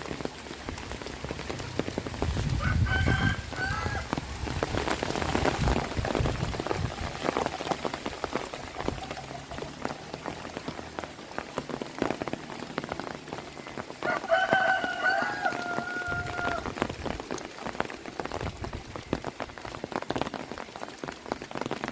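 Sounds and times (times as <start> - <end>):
heavy rain falling: 0.0 - 21.9
rooster crowing: 2.6 - 4.2, 14.0 - 16.8.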